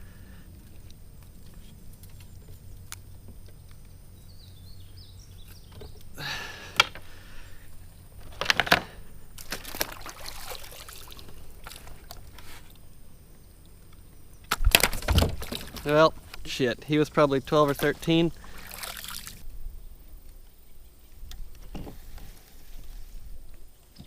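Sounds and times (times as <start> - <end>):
water splashing and trickling: 8.2 - 12.9, 14.6 - 19.5.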